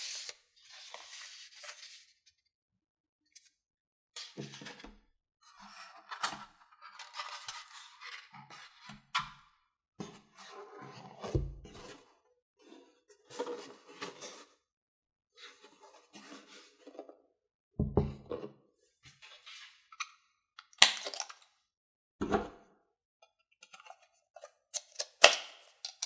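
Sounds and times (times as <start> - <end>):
plastic parts clicking: 24.8 - 26.0.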